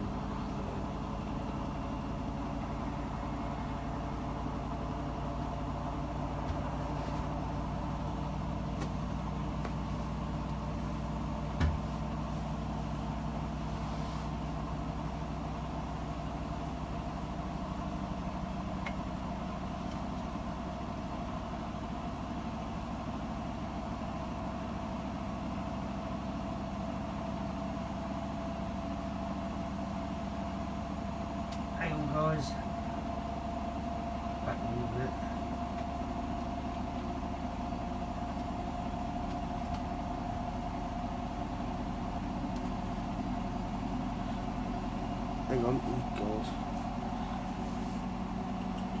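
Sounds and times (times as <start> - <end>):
washing machine spinning: 0.0 - 13.7, 35.4 - 45.8
washing machine knock: 11.5 - 11.9.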